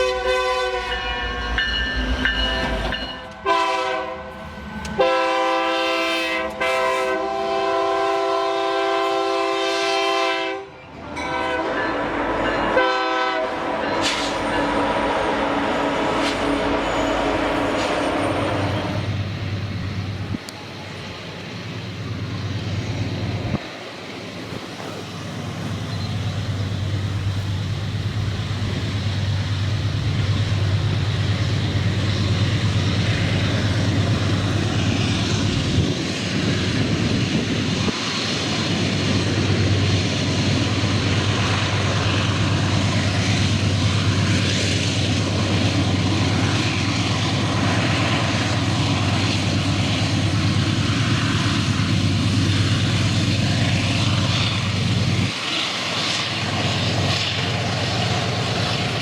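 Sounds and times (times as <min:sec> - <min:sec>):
diesel locomotive engine drone: 0:00.0 - 0:59.0
train wheel and rail noise: 0:00.0 - 0:59.0.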